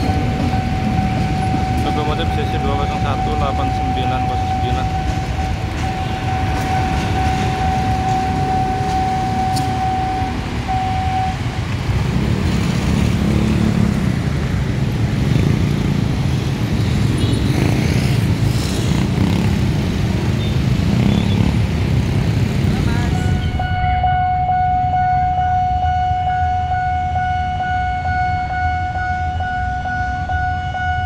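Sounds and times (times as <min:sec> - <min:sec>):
steady high tone: 0:00.0 - 0:11.6, 0:22.9 - 0:31.0
vehicle engines rumbling: 0:00.0 - 0:31.0.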